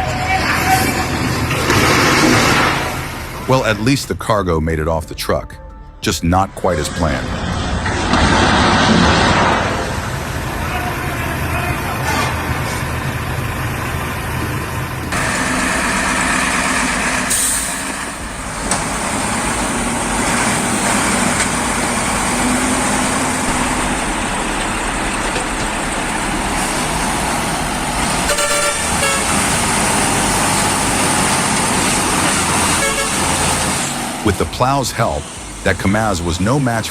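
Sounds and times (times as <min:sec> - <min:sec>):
truck engine running: 0:00.0 - 0:04.8, 0:06.0 - 0:36.9
truck horn: 0:10.5 - 0:13.0, 0:28.0 - 0:30.6, 0:32.0 - 0:33.9.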